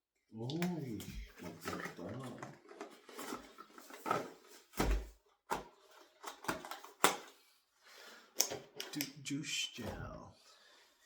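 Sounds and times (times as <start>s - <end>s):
packaging rustling: 1.3s - 4.8s.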